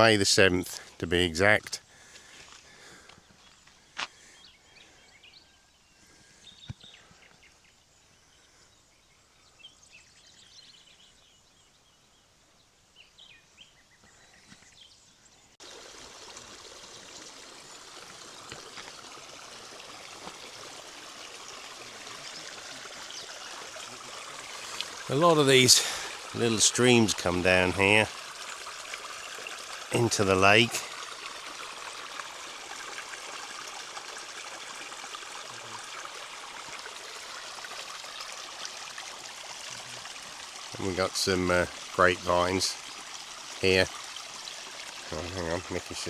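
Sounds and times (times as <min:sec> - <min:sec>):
stream water rushing: 0:15.6 - 0:46.0.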